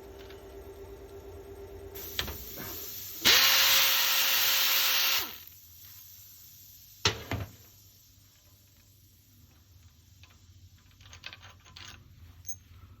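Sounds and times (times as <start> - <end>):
power tool spinning: 3.2 - 5.5.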